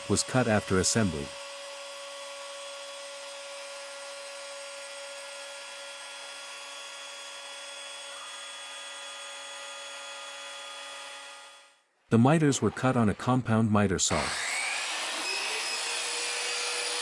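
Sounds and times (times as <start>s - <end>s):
cnc spindle high whine: 14.1s - 17.0s.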